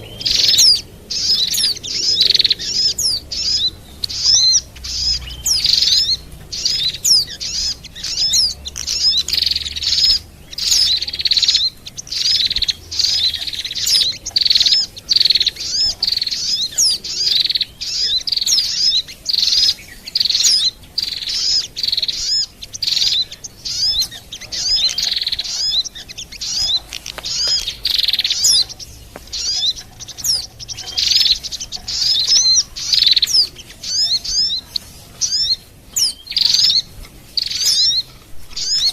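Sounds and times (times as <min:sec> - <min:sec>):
small songbirds chirping: 0:00.0 - 0:38.9.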